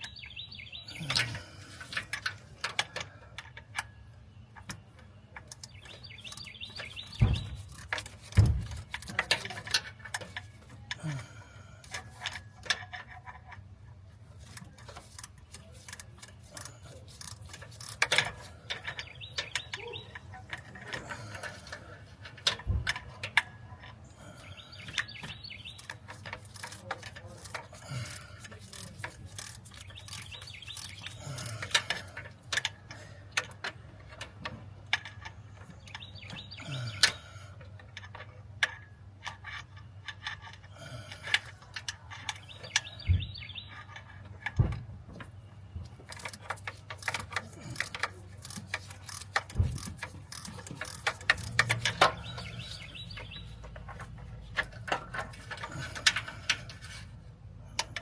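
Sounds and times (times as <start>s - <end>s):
hand tools tapping on metal: 14.4s - 58.0s.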